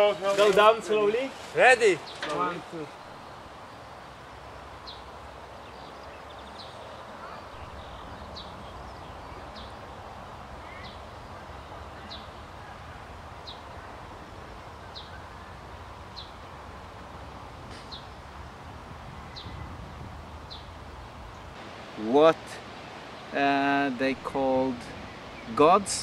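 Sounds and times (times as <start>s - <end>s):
steady low background noise: 0.0s - 26.0s
bird calling: 4.8s - 16.5s.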